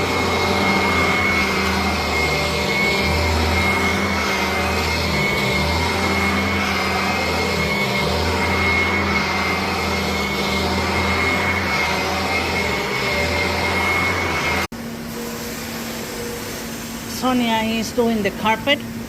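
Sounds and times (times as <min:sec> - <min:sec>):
vacuum motor whining: 0:00.0 - 0:14.7.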